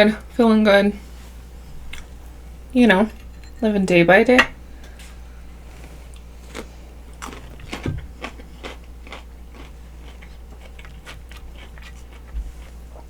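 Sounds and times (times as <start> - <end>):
chewing and biting: 6.1 - 13.0
sharp food crunches: 6.5 - 13.0.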